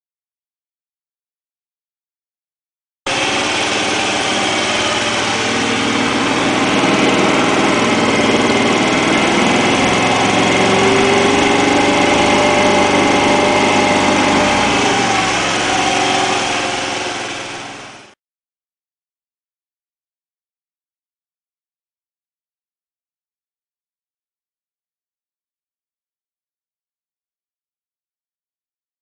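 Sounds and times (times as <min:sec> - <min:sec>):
moped engine running: 0:03.1 - 0:18.2.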